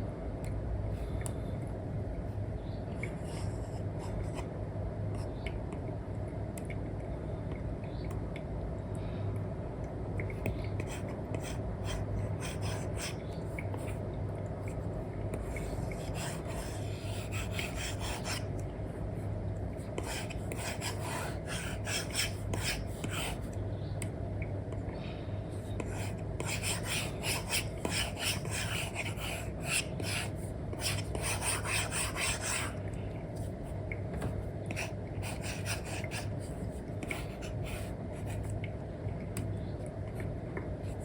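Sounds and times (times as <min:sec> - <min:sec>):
stylus scratching and tapping screen: 0:15.4 - 0:18.4, 0:25.8 - 0:32.8.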